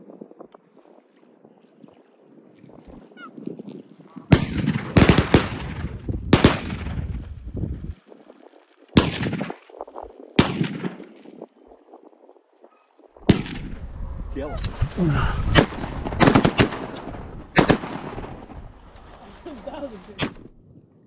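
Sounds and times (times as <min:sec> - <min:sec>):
shotgun shots: 0:04.3 - 0:07.3, 0:09.0 - 0:09.6, 0:10.4 - 0:11.2, 0:13.3 - 0:13.8, 0:15.5 - 0:18.6.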